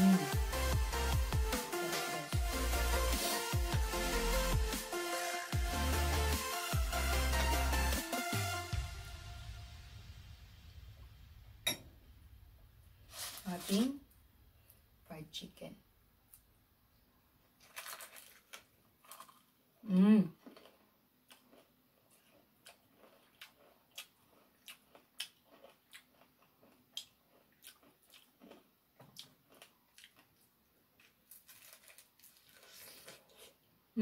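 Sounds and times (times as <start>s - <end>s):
person humming: 0.0s - 0.5s, 19.8s - 20.3s
crispy chicken crunching: 17.6s - 19.5s, 20.4s - 33.6s.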